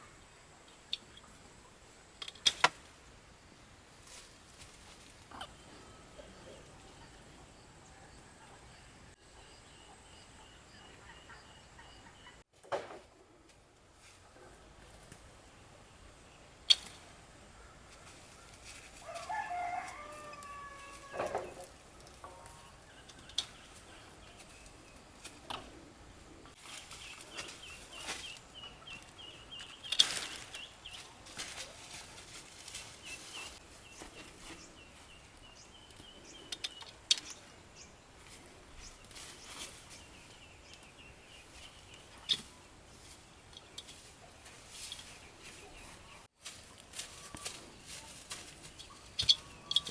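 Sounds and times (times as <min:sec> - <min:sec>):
rooster crowing: 0:19.0 - 0:21.5.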